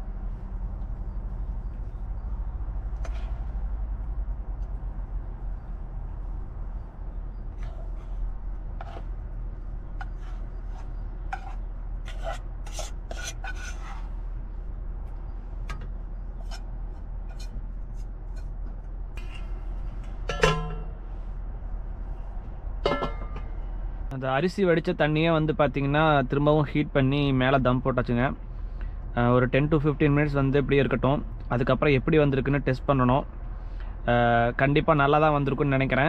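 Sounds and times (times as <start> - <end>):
steady low hum: 0.0 - 36.0
metal pots clinking and knocking: 20.2 - 21.0, 22.8 - 23.5
loud ringing metal clank: 20.3 - 21.0, 22.8 - 23.5.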